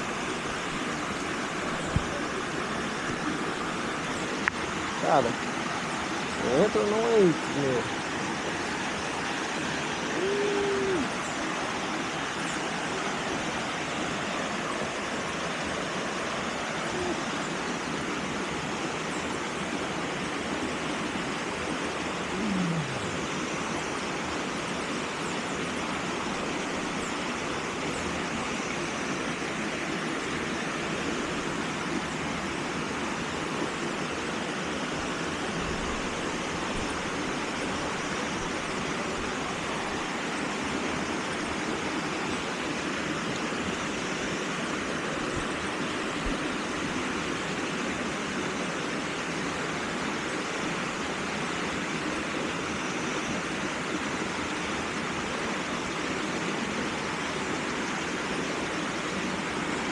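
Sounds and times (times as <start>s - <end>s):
short voice sound: 10.1s - 11.1s, 22.3s - 23.2s.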